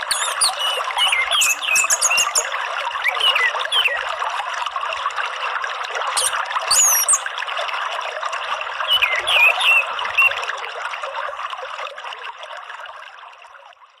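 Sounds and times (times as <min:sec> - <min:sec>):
high bird chirps: 0:00.0 - 0:04.0, 0:06.2 - 0:07.2, 0:08.9 - 0:10.3
trickling water: 0:00.0 - 0:14.0.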